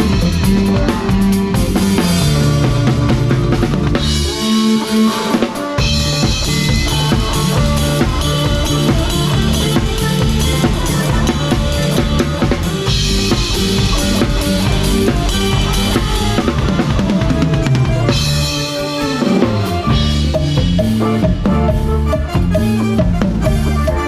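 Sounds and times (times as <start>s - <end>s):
bass drum: 0.0s - 4.4s, 5.8s - 24.0s
cymbals: 0.0s - 24.0s
live band playing cha-cha: 0.0s - 24.0s.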